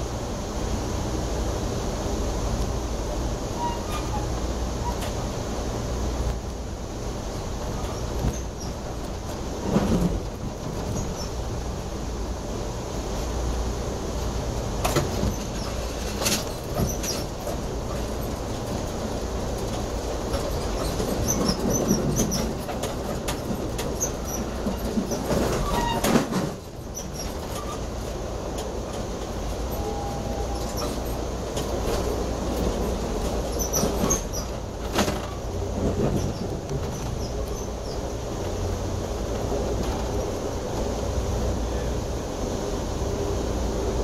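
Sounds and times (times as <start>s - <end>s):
train wheels rumbling on rail: 0.0s - 44.0s
high-pitched wheel squeals: 3.6s - 5.1s, 25.5s - 26.1s, 29.7s - 31.1s.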